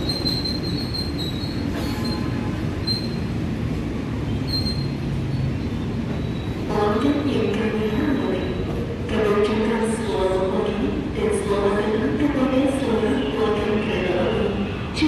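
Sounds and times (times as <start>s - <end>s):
train wheels squealing: 0.0s - 3.4s, 4.3s - 6.7s
train rumbling: 0.0s - 15.0s.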